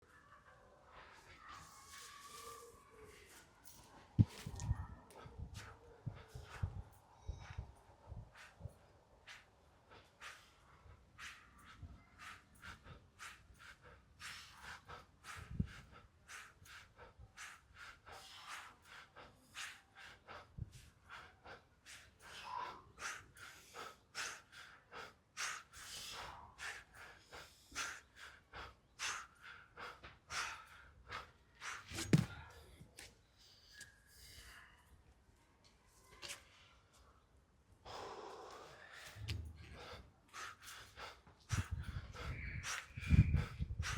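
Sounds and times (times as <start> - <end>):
man breathing hard: 4.2 - 32.8, 37.8 - 43.9.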